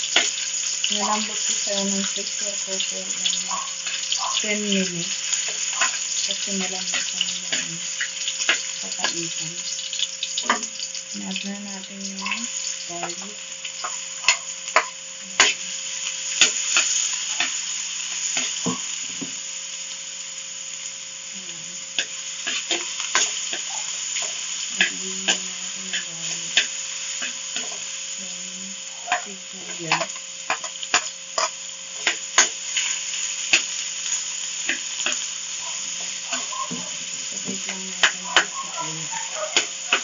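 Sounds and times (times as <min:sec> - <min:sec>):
garlic sizzling in hot oil: 0:00.0 - 0:40.0
metal spoon scraping a pan: 0:05.1 - 0:09.1, 0:13.8 - 0:15.6, 0:22.0 - 0:27.8, 0:29.0 - 0:33.7.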